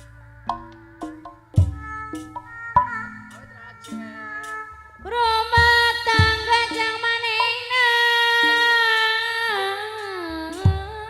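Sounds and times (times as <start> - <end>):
low drum strokes: 0.0 - 7.5, 10.5 - 11.0.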